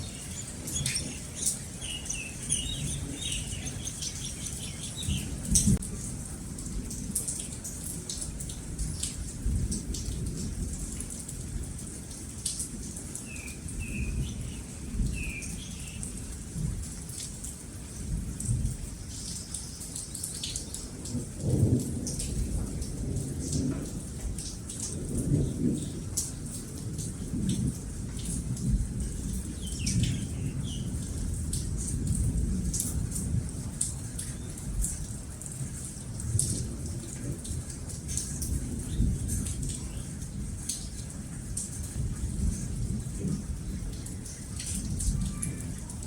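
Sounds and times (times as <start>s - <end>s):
bird chirps: 0.0s - 5.7s
raindrop ticks: 0.0s - 46.0s
steady rain: 0.0s - 46.0s
low rolling thunder: 21.0s - 33.9s, 34.6s - 46.0s.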